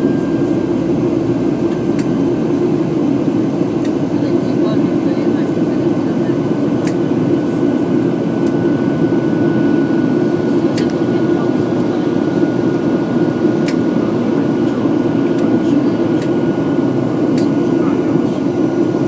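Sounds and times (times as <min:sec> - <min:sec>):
jet engine cabin drone: 0:00.0 - 0:19.0
thin steady whine: 0:00.0 - 0:19.0.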